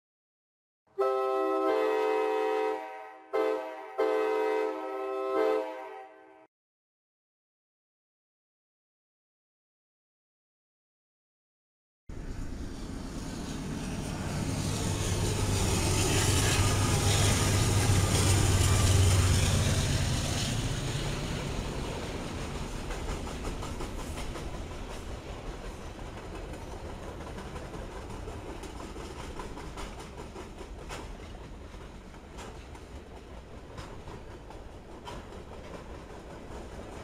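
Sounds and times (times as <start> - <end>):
train engine rumble: 12.1 - 37.0
wheels clicking over rails: 14.6 - 37.0.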